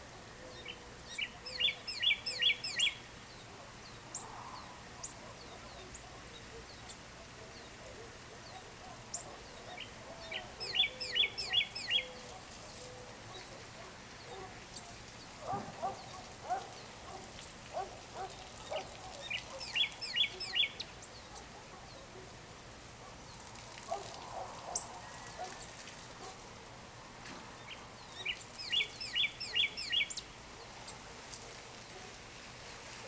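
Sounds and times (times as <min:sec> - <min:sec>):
bird chirps: 0:00.5 - 0:03.4, 0:08.5 - 0:13.6, 0:18.6 - 0:21.5, 0:27.7 - 0:31.0.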